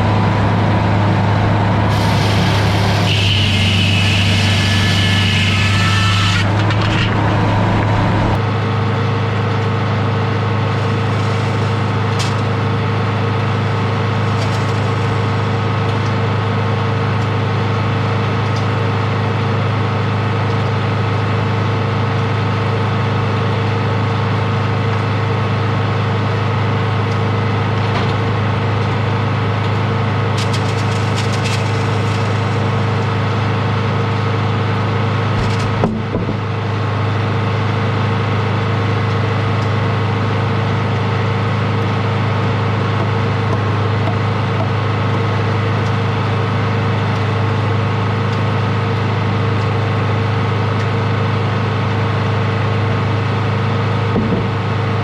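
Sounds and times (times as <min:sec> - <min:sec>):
sawmill power unit droning: 0:00.0 - 0:55.0
circular saw cutting log: 0:01.9 - 0:08.4, 0:10.6 - 0:16.1, 0:30.3 - 0:34.0.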